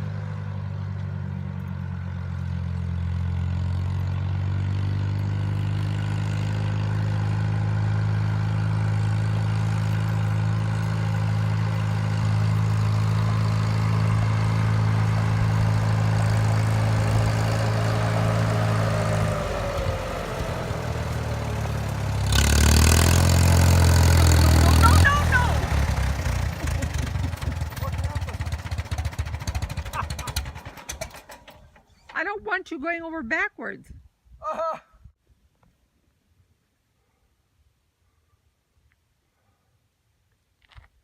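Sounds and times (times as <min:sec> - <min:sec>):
tractor engine running: 0:00.0 - 0:32.7.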